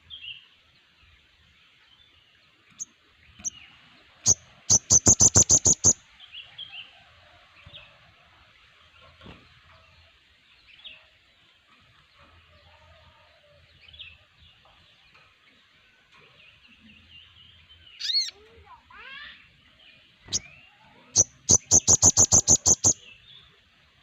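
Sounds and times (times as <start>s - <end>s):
sunbirds calling: 0.0s - 6.8s, 13.9s - 24.0s
sharp high bird chips: 4.3s - 6.0s, 21.2s - 23.0s.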